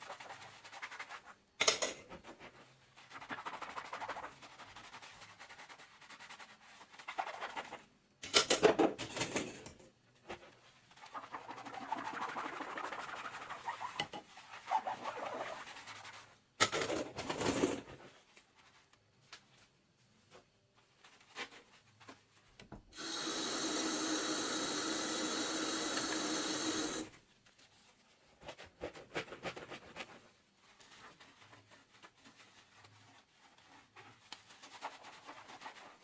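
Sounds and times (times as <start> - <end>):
sponge scrubbing and squeaking on dishes: 10.8 - 16.4.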